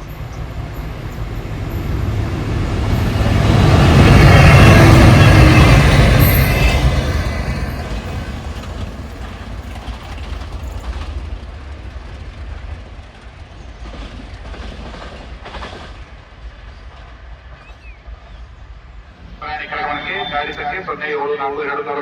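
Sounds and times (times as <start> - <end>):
train wheel clacks: 0.0 - 16.1
train rolling on track: 0.0 - 22.0.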